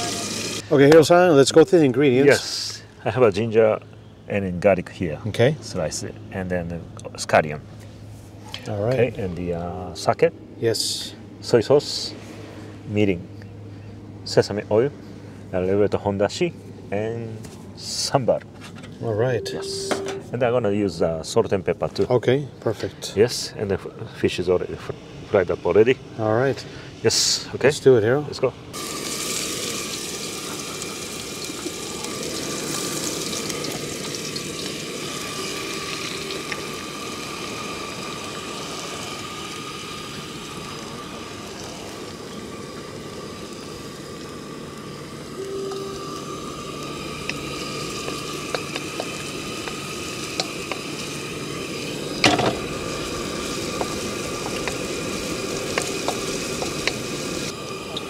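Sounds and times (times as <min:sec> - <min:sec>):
garlic sizzling in hot oil: 0:00.0 - 0:00.6, 0:28.8 - 0:58.0.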